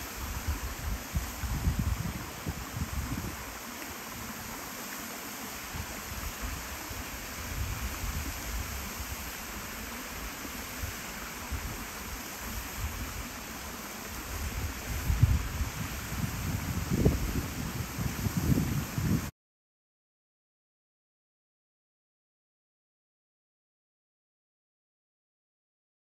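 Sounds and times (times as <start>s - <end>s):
wind buffeting microphone: 0.0s - 4.3s, 5.7s - 9.2s, 14.2s - 19.3s
river water flowing: 0.0s - 18.6s.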